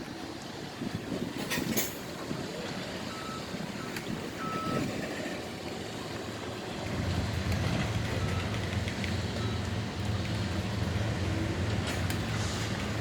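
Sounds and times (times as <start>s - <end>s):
low engine rumble: 0.0s - 13.0s
outdoor vehicle noise: 0.0s - 13.0s
short electronic beeps: 3.1s - 4.8s.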